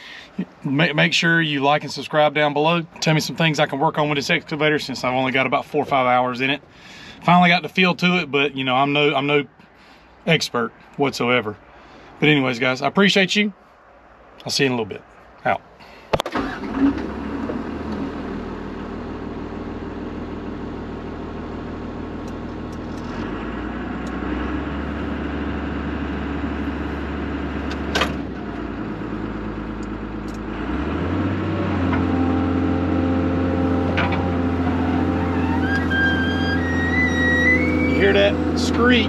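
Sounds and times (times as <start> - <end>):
excavator diesel engine running: 16.3 - 39.0
high squeal from pivot joint: 34.6 - 38.5.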